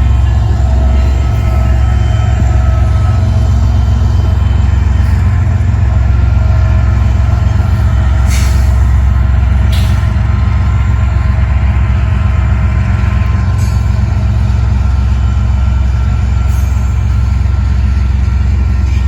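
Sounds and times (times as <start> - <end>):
diesel locomotives droning: 0.0 - 19.0.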